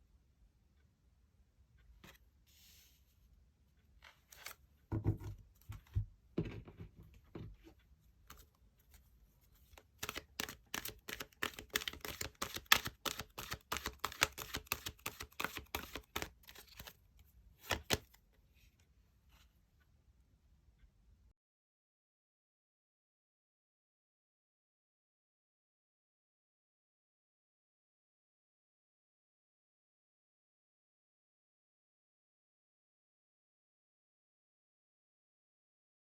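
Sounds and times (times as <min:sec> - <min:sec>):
cards shuffling with rapid clicks: 0:09.8 - 0:17.0, 0:17.6 - 0:18.2
sharp card snap: 0:10.0 - 0:16.9.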